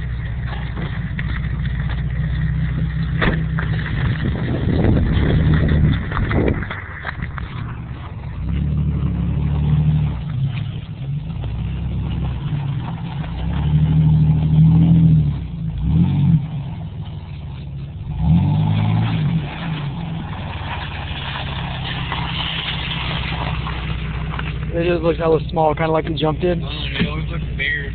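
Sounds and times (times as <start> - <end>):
pickup truck engine revving: 0.0 - 27.9.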